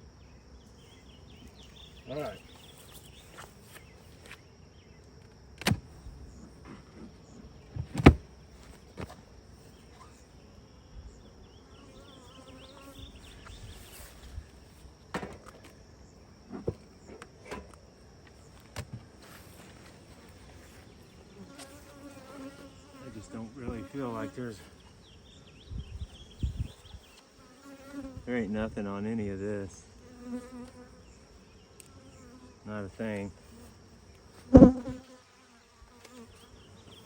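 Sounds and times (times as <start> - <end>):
honey bees buzzing: 0.0 - 37.0
knocks on hive boxes: 7.7 - 8.3, 15.1 - 15.6, 34.5 - 35.0.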